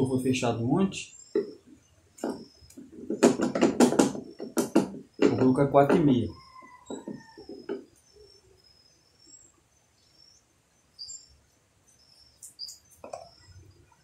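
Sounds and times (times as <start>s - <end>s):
small birds chirping: 0.0s - 14.0s
plastic containers knocking: 1.3s - 7.9s.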